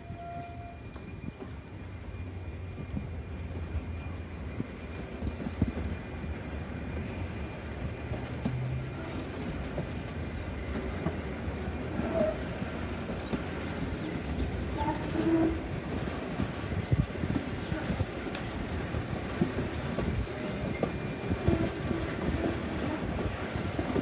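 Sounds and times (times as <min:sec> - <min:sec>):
railway carriage rumbling: 0:00.0 - 0:24.0
wheels clicking on rails: 0:02.7 - 0:24.0.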